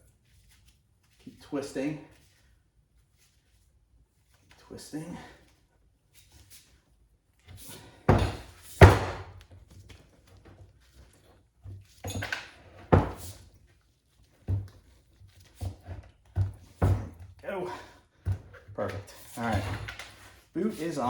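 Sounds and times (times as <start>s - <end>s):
dull knocks and thumps: 8.1s - 9.4s, 11.6s - 13.4s, 14.4s - 17.4s.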